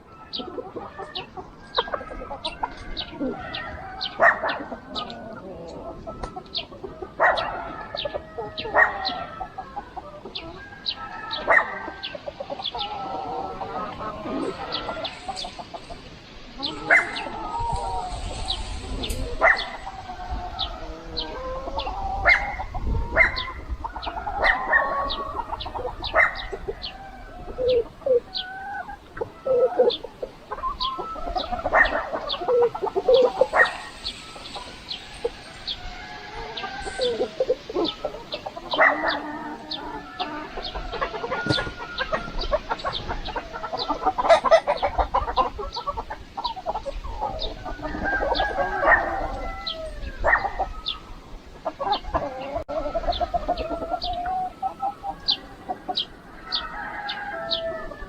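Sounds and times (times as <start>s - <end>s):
chickens clucking: 0.0s - 58.0s
faint high chirp: 33.0s - 37.9s.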